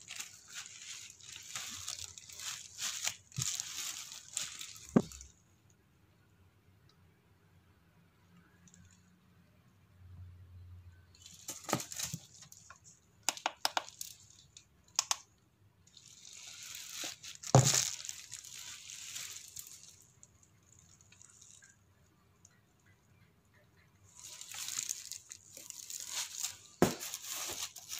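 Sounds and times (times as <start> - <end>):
bubble wrap crinkling: 0.0 - 5.4, 11.2 - 15.2, 15.9 - 21.8, 24.1 - 27.9.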